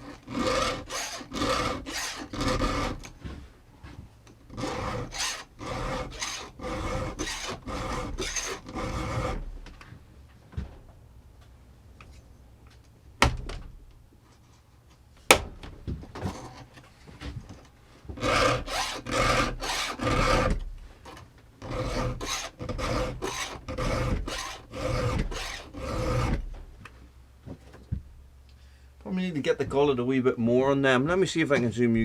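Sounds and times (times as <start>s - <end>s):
file rasping on chainsaw chain: 0.0s - 3.1s, 4.5s - 9.4s, 18.2s - 20.6s, 21.6s - 26.4s.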